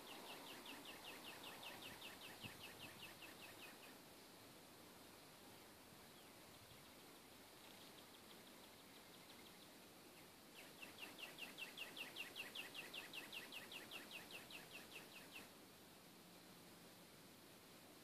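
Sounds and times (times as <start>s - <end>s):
songbird trill: 0.0s - 4.0s, 6.0s - 15.6s
faint outdoor hiss: 0.0s - 18.0s.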